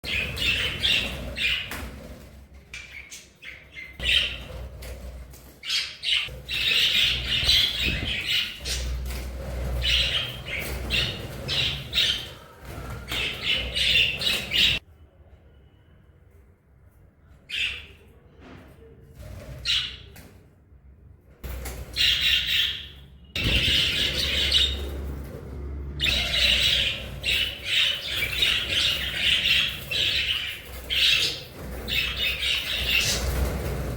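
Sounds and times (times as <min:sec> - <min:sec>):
budgerigars chirping and squawking: 0:00.0 - 0:02.0, 0:02.8 - 0:04.8, 0:05.6 - 0:14.8, 0:21.8 - 0:25.2, 0:25.9 - 0:33.9.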